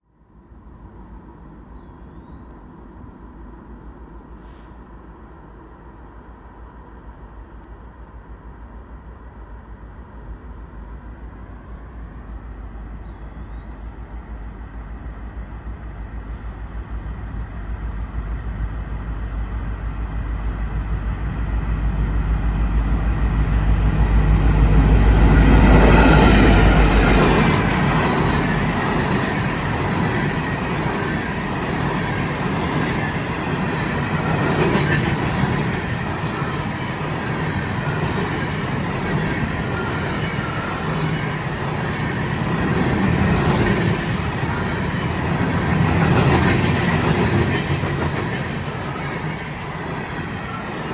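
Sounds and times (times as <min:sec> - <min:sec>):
locomotive deep rumble: 0:07.2 - 0:36.2.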